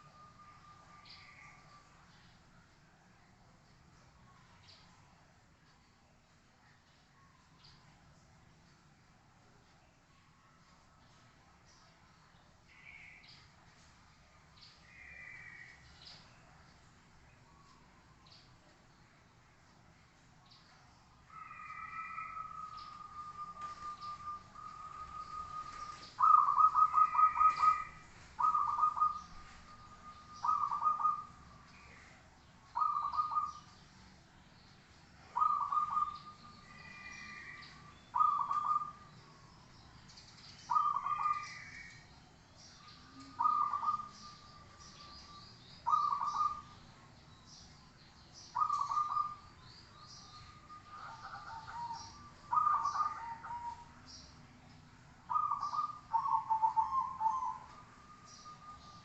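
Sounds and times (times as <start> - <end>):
small birds chirping: 0.0 - 59.0
dove cooing trill: 21.3 - 32.1, 32.8 - 33.6, 35.3 - 39.1, 40.7 - 41.9, 43.1 - 45.1, 45.8 - 46.8, 48.6 - 49.5, 50.4 - 54.0, 55.2 - 59.0.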